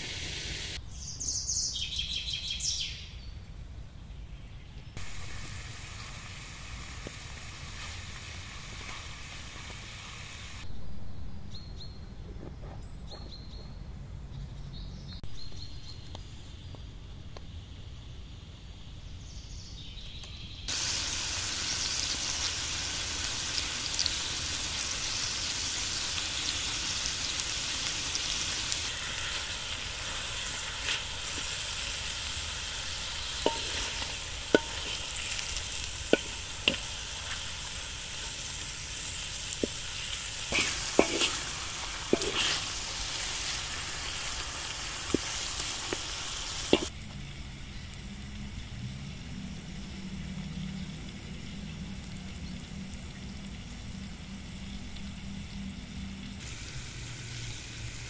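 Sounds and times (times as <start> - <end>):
meat sizzling in a wok: 0.0 - 0.8, 5.0 - 10.7, 20.7 - 58.0
wooden spatula scraping a pan: 40.4 - 43.0.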